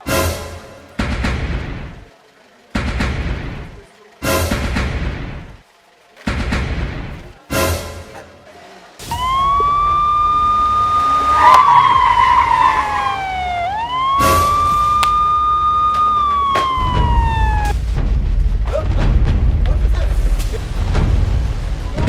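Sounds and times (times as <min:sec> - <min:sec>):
siren wailing: 0:09.1 - 0:17.8.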